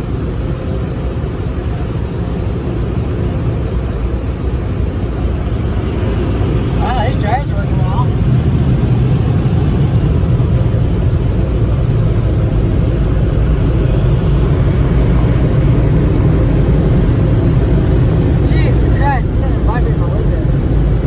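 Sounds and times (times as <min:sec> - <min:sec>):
car wash dryers blowing air: 0:00.0 - 0:21.0.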